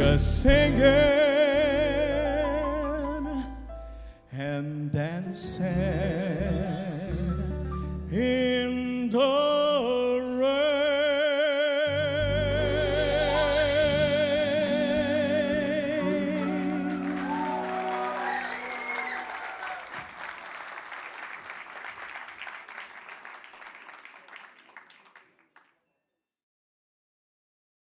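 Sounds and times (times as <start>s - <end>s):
audience applauding: 16.0s - 25.7s
audience shouts: 16.4s - 20.3s.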